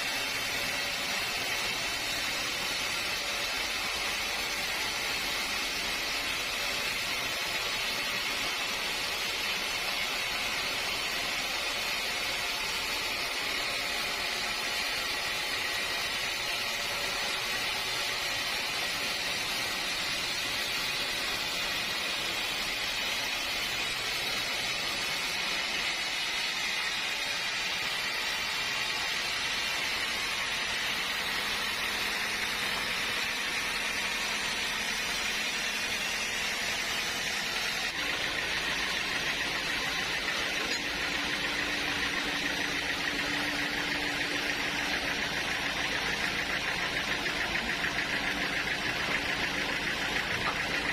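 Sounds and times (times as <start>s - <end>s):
sawmill machinery hiss: 0.0s - 50.9s.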